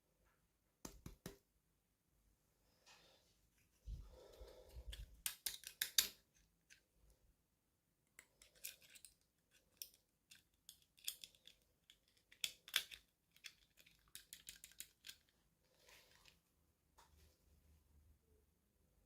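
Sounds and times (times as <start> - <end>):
toy packaging being opened: 8.4 - 15.3.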